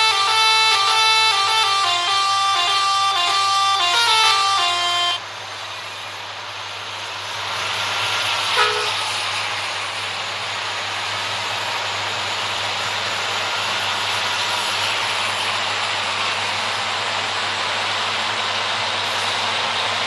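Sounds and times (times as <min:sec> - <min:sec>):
truck musical horn: 0:00.0 - 0:05.3, 0:08.6 - 0:09.0
truck driving: 0:00.0 - 0:20.0.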